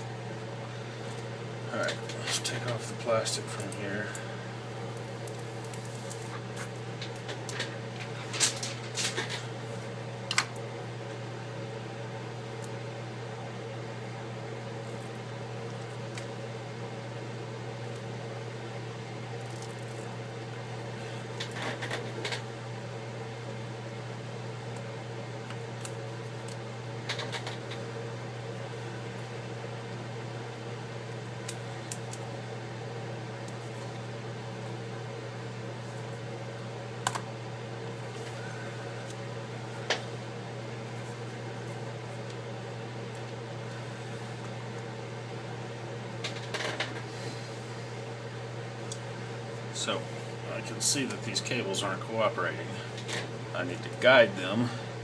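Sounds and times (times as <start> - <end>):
low machine hum: 0.0 - 55.0
plastic film being peeled off: 5.0 - 6.7.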